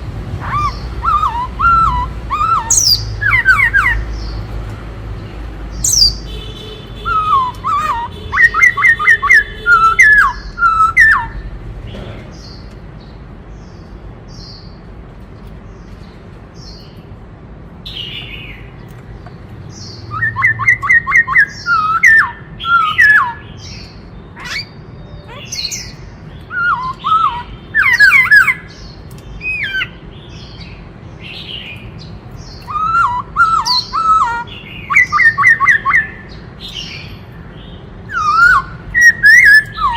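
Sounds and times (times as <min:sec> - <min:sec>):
bird whistling song: 0:00.4 - 0:04.4, 0:05.7 - 0:06.4, 0:07.0 - 0:11.5, 0:19.7 - 0:37.2, 0:38.0 - 0:39.9.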